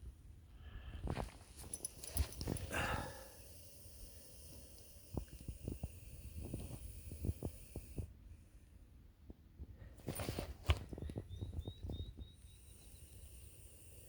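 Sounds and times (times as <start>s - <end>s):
rustling: 1.0s - 3.0s, 9.9s - 11.1s
snake hissing: 2.2s - 8.1s, 12.4s - 14.0s.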